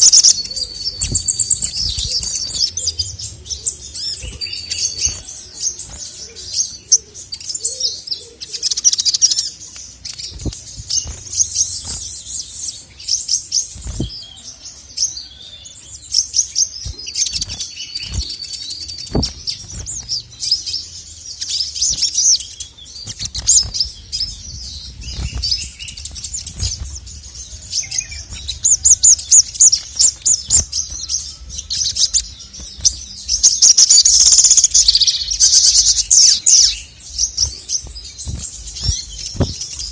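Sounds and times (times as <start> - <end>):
bird chattering song: 0.0 - 39.9
low thumps: 19.1 - 20.0, 37.5 - 39.9.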